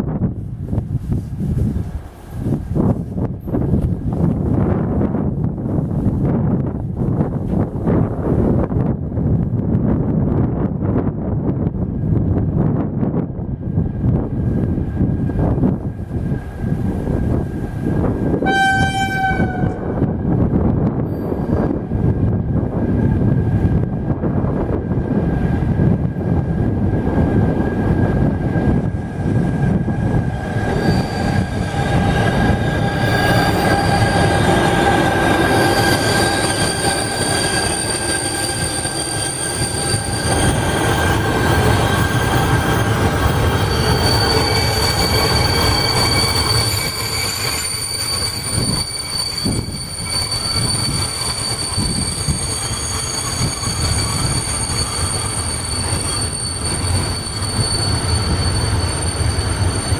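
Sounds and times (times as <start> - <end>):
train rumbling past: 0.0 - 59.9
wheel squeal: 30.0 - 59.9.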